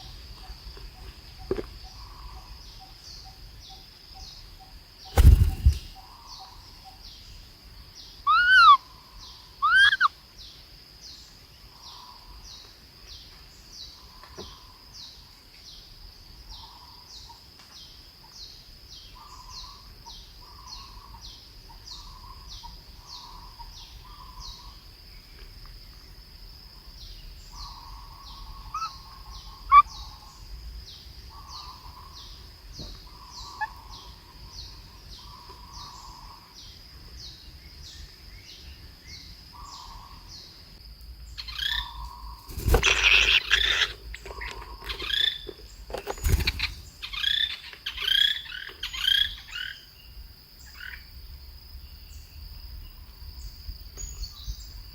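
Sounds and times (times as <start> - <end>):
high thin bird chirp: 5.0 - 6.1, 9.6 - 10.1, 41.4 - 49.4
soft low bird calls: 8.2 - 10.1, 27.5 - 30.5
loud arching bird calls: 8.3 - 10.1, 27.6 - 30.4, 33.1 - 34.5, 41.4 - 49.8.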